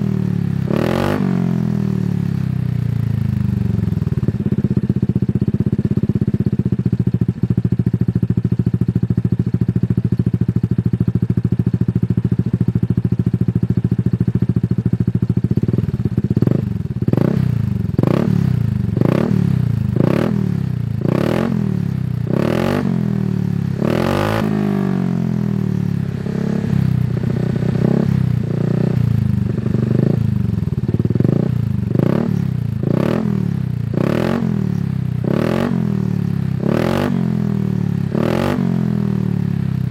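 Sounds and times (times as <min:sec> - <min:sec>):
engine revving: 0:00.7 - 0:01.7, 0:17.1 - 0:23.2, 0:23.8 - 0:25.3, 0:26.1 - 0:30.3, 0:31.2 - 0:36.0, 0:36.6 - 0:37.4, 0:38.1 - 0:39.1.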